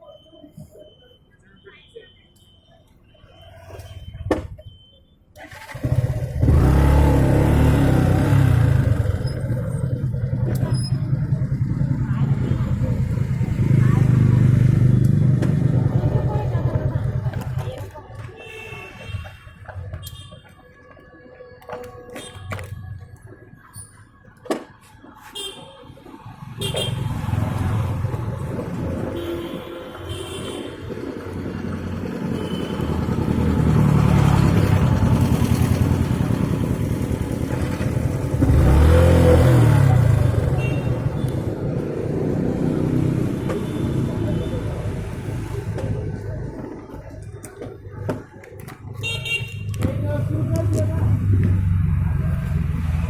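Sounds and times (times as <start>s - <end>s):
motorcycle engine starting and running: 5.4s - 17.9s, 30.1s - 53.0s.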